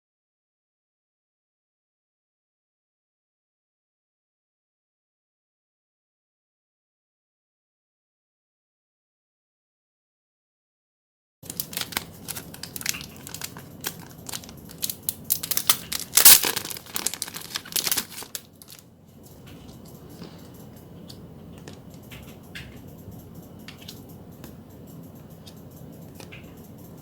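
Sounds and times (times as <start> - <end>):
packaging crinkling: 11.4 - 18.8.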